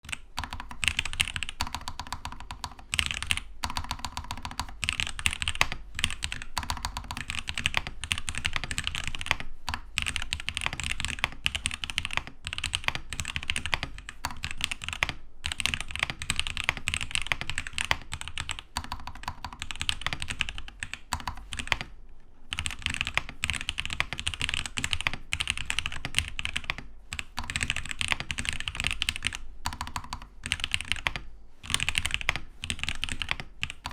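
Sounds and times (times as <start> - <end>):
mechanical keyboard typing: 0.0 - 21.9, 22.5 - 33.9.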